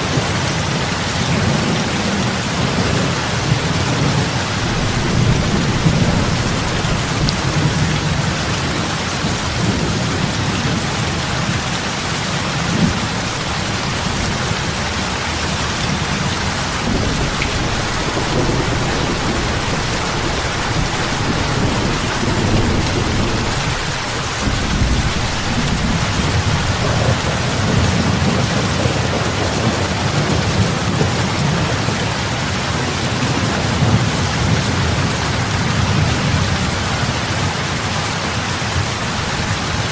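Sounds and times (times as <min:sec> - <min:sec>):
heavy rain on water: 0:00.0 - 0:39.9
low rumble: 0:04.1 - 0:08.7.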